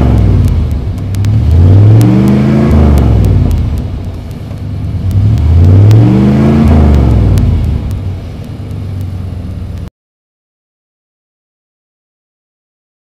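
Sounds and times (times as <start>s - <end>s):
car engine revving: 0.0s - 9.9s.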